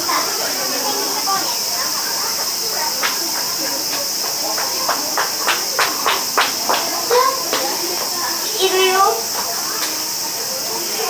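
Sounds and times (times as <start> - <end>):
insect chorus chirring: 0.0 - 11.0.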